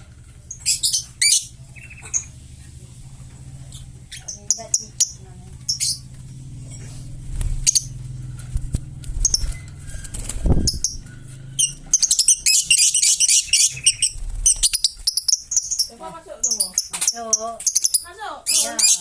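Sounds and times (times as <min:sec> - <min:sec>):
parrot chirping and squeaking: 0:00.4 - 0:02.4, 0:03.7 - 0:06.1, 0:07.6 - 0:08.0, 0:09.2 - 0:19.0.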